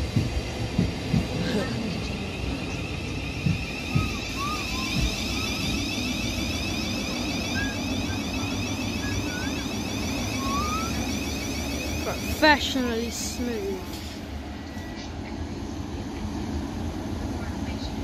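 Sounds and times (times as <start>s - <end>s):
train wheels rumbling on rails: 0.0s - 18.0s
high electric whine: 2.6s - 13.9s.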